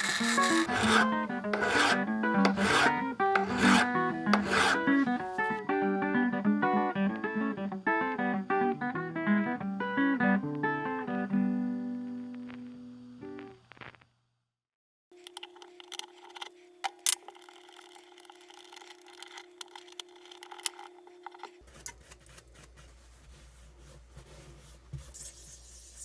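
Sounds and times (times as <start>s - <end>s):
small motor whining: 0.0s - 5.6s.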